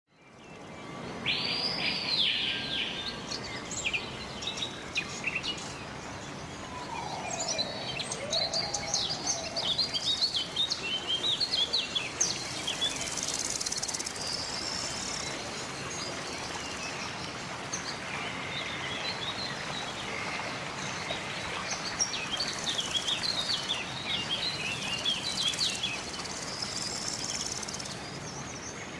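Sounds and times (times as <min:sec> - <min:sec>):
steady background hiss: 0:00.6 - 0:28.9
birds chirping and trilling: 0:01.1 - 0:28.9
low gliding bird call: 0:06.6 - 0:10.0.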